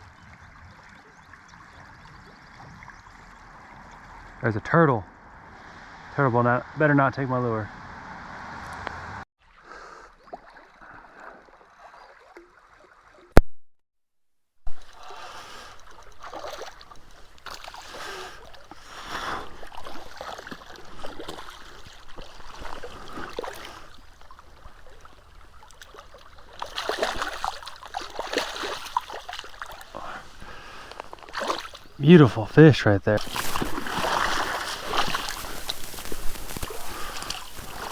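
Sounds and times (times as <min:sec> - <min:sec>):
river water splashing: 0:09.5 - 0:13.3, 0:14.7 - 0:37.9.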